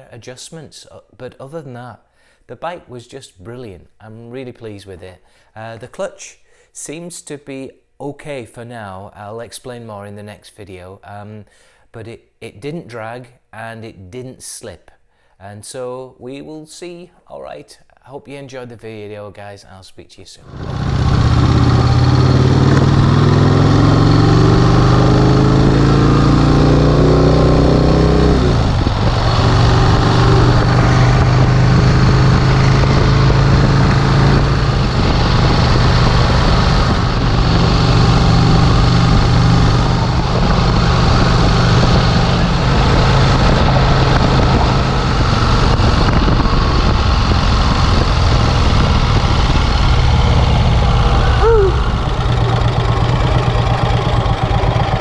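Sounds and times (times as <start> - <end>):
motorcycle engine pulling hard: 20.5 - 55.0.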